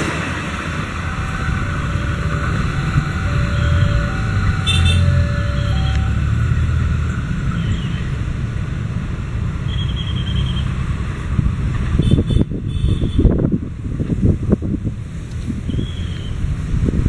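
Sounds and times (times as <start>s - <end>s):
wind buffeting the microphone: 0.0s - 9.3s, 10.9s - 17.0s
train wheels rumbling on rail: 0.0s - 17.0s
alternating two-note tone: 0.8s - 8.0s.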